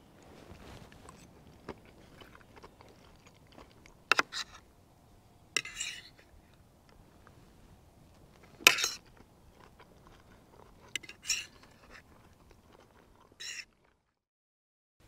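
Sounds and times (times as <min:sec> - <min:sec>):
person chewing crunchy food: 0:00.4 - 0:04.8, 0:08.1 - 0:14.2.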